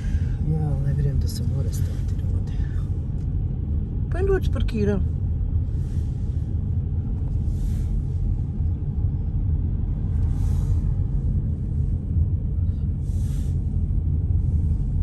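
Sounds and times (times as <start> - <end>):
car driving rumble from inside: 0.0 - 15.0.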